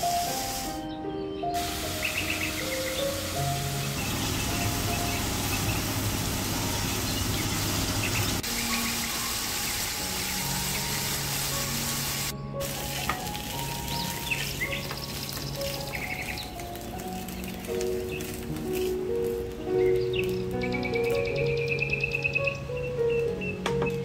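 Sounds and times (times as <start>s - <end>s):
soft background music: 0.0s - 24.0s.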